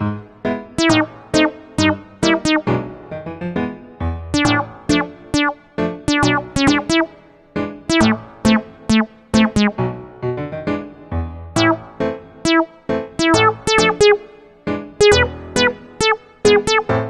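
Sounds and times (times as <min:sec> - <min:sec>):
bouncy keyboard tune: 0:00.7 - 0:03.1, 0:04.1 - 0:10.0, 0:11.6 - 0:17.0
bass line: 0:00.8 - 0:02.6, 0:04.4 - 0:07.1, 0:07.9 - 0:09.8, 0:11.6 - 0:14.2.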